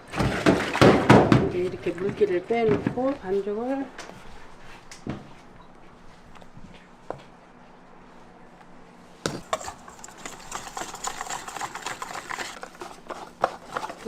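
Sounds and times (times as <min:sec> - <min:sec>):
wet batter stirring and clattering: 0:00.0 - 0:03.3, 0:09.3 - 0:14.0.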